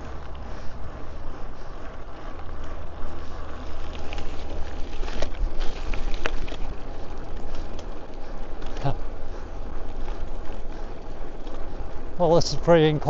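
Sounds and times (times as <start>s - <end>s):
bike tyre rumble: 0.0s - 13.0s
sharp clicks and ticks: 1.7s - 9.1s, 9.7s - 12.0s.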